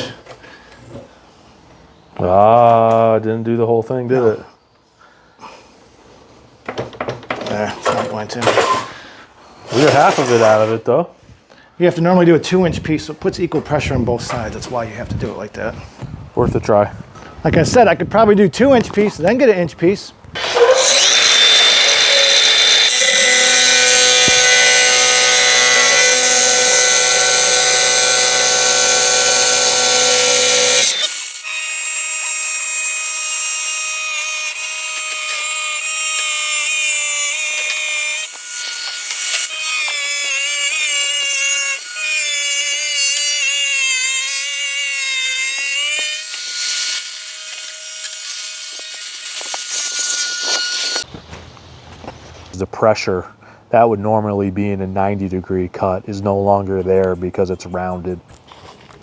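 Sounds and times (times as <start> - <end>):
angle grinder cutting tile: 20.4 - 51.1.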